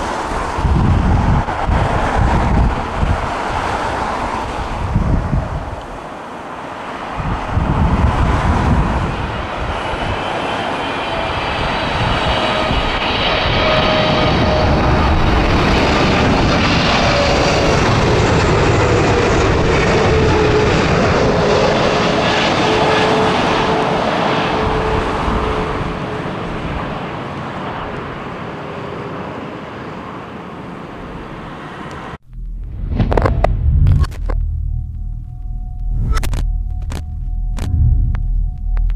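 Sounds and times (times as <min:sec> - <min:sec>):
wind buffeting microphone: 0:00.0 - 0:06.1, 0:07.0 - 0:22.5, 0:32.2 - 0:38.9
jet airliner flying past: 0:00.0 - 0:38.9.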